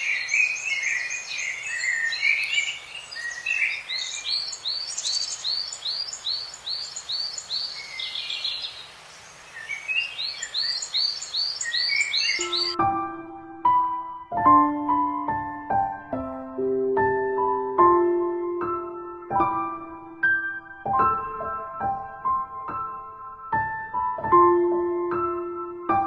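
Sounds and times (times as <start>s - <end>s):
steady background hiss: 0.0s - 12.6s
birds chirping: 0.0s - 12.8s.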